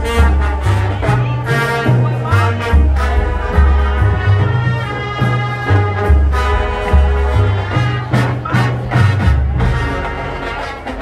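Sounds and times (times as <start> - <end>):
brass playing swing: 0.0 - 11.0
walking bass line: 0.0 - 11.0.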